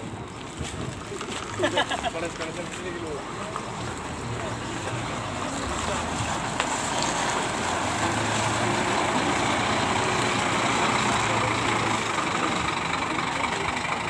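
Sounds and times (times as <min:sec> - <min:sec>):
coach diesel engine running: 0:00.0 - 0:14.0.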